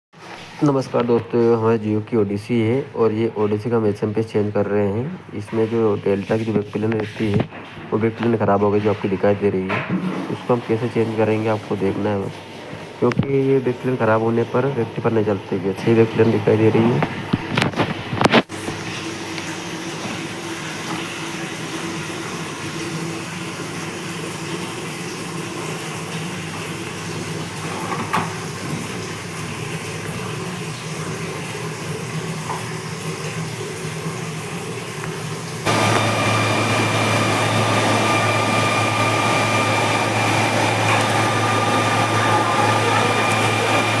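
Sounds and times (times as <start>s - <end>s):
loud hum with high whine: 35.6s - 44.0s
power equipment humming: 35.6s - 44.0s.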